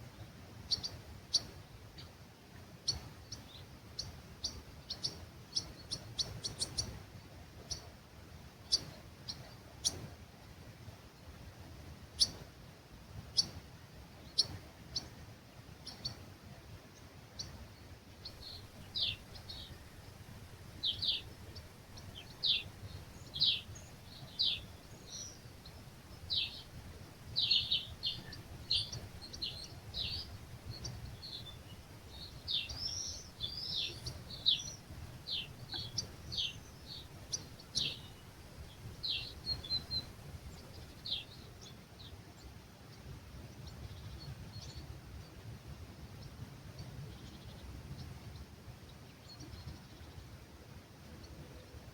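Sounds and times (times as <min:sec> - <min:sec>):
birds chirping: 0:17.4 - 0:42.2
low steady rumble: 0:18.1 - 0:41.4.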